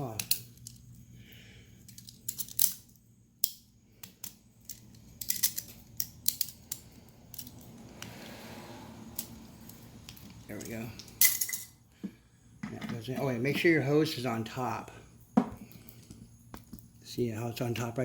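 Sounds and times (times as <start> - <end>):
hands clicking hose fittings: 3.4 - 8.1.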